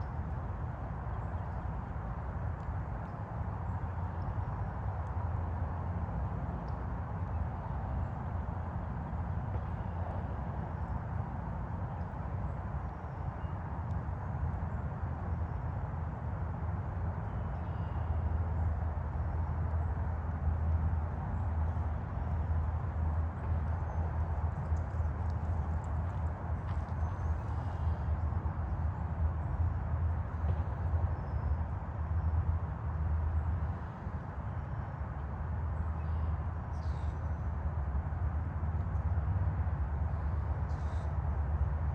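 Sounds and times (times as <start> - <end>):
distant highway traffic rumble: 0.0 - 41.9.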